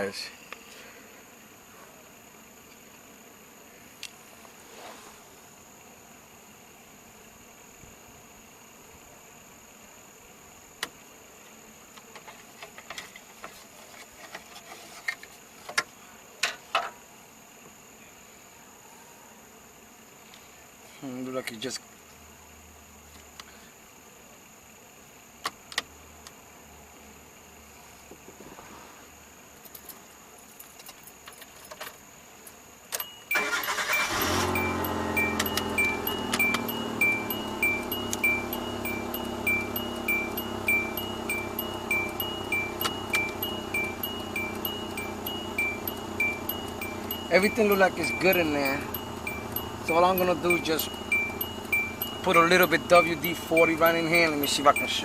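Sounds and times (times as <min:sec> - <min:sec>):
high insect trill: 0:00.0 - 0:55.0
car engine starting and idling: 0:33.0 - 0:55.0
light ticking: 0:33.0 - 0:55.0
two-note electronic beep: 0:33.1 - 0:55.0.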